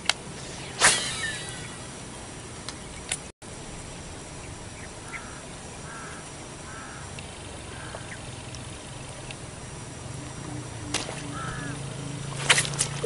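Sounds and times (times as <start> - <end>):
low outdoor hum: 0.0 - 13.0
bird calling: 4.4 - 13.0.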